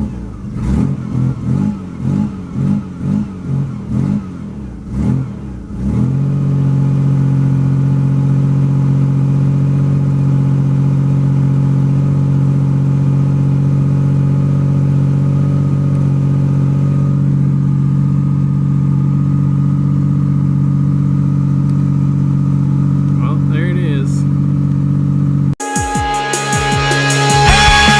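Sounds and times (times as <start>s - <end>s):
car engine idling: 0.0s - 25.6s.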